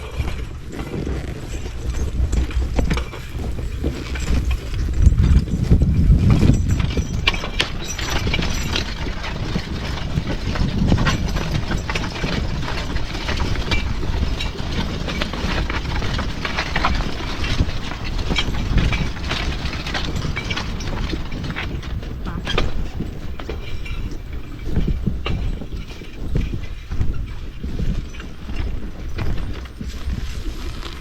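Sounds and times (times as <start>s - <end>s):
cultivator and harness rattling: 0.0s - 31.0s
horse hoofbeats: 0.0s - 31.0s.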